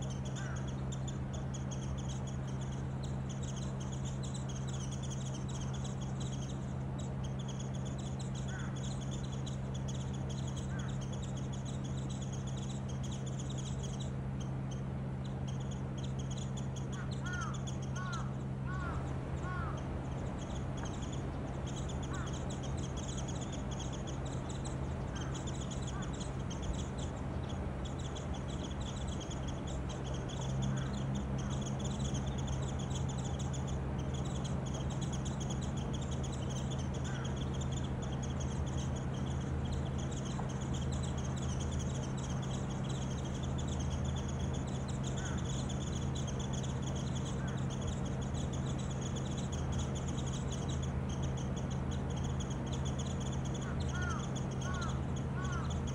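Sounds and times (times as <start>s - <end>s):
lower bird calls: 0.0s - 55.9s
small birds twittering: 0.0s - 55.9s
steady low hum: 0.0s - 55.9s.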